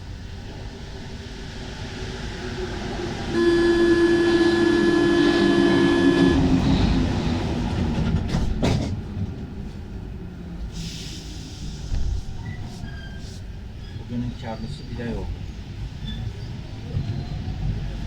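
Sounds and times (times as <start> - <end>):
train rumble: 0.0 - 18.0
train signal tone: 3.3 - 6.8.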